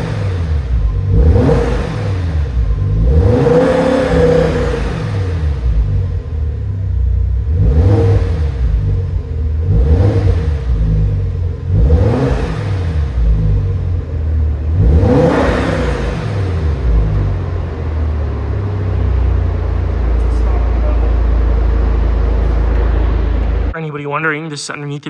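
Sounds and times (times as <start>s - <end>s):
car engine idling and revving: 0.0s - 23.8s.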